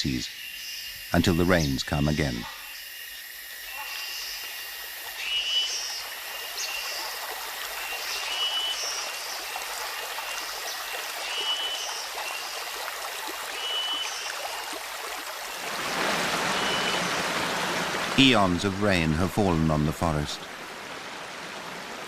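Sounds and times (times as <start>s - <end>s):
stream water flowing: 4.0s - 22.0s.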